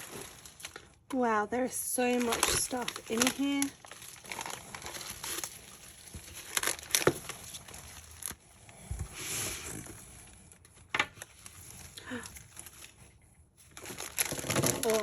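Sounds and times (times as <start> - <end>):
packets rustling and crinkling: 0.0 - 15.0.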